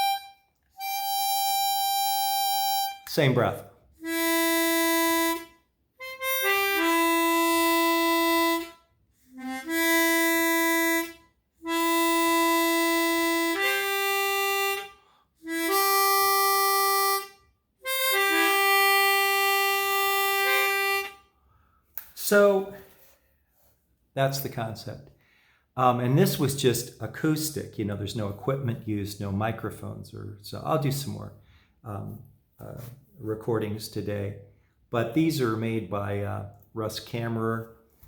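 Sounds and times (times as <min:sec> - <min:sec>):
harmonica held notes: 0:00.0 - 0:03.1, 0:04.0 - 0:21.4.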